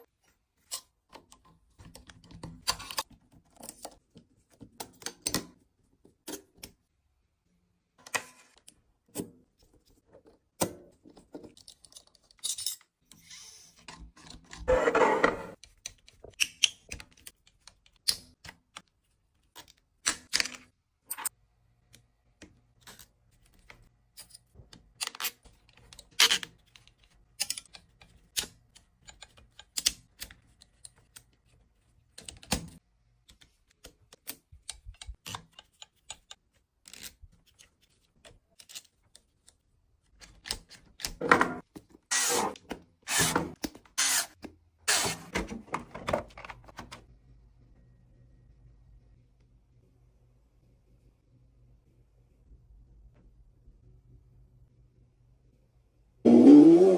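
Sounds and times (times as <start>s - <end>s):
small clicks and taps of parts: 15.6s - 41.9s.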